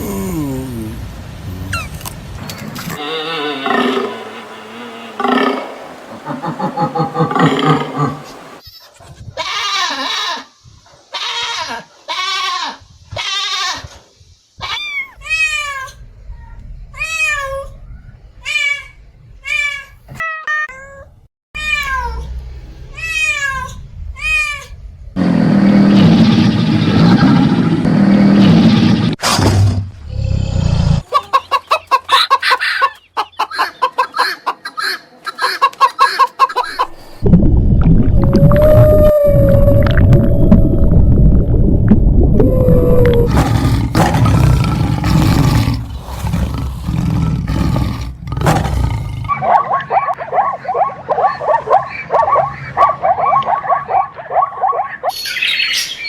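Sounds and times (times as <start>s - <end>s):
animal calls: 2.9s - 8.6s, 42.4s - 55.9s
rough noisy animal call: 2.9s - 8.6s, 25.2s - 29.2s, 42.4s - 55.7s
rapid pulsed animal calls: 3.0s - 8.6s.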